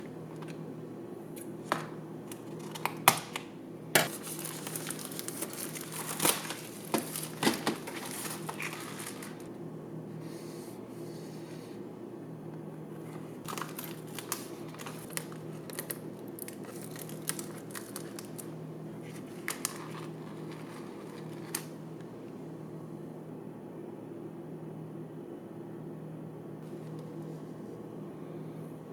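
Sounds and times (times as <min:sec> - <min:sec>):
steady low hum: 0:00.0 - 0:28.9
plastic packaging crinkling and tearing: 0:04.0 - 0:09.5, 0:13.4 - 0:22.1.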